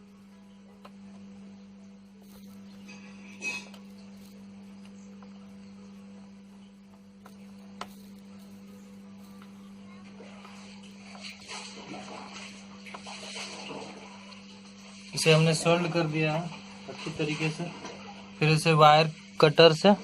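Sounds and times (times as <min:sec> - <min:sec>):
steady hum: 0:00.0 - 0:20.0
soldering iron clicks and taps: 0:06.9 - 0:08.2.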